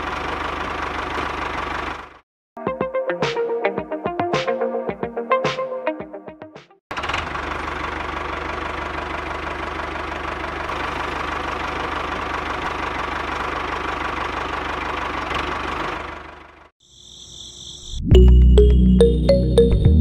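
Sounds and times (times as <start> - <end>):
diesel tractor engine chugging: 0.0 - 2.2, 6.9 - 16.7.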